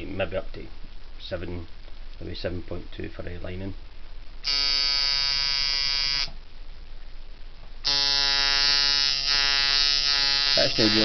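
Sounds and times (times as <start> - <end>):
tattoo machine buzzing: 4.4 - 6.3, 7.8 - 11.0.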